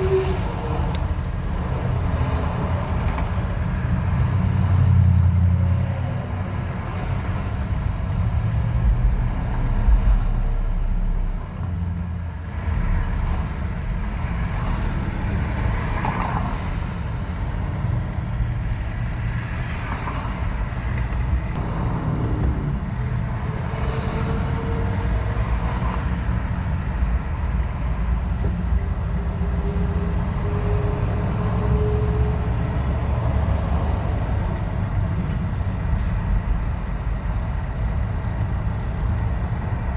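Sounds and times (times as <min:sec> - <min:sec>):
engine and road rumble: 0:00.0 - 0:39.9.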